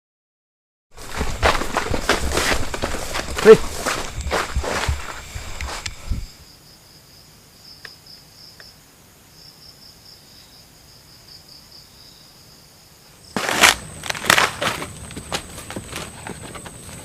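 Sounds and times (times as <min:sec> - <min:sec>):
rustling crunch in undergrowth: 0:00.9 - 0:06.4, 0:13.4 - 0:17.0
insect trilling: 0:01.0 - 0:06.6.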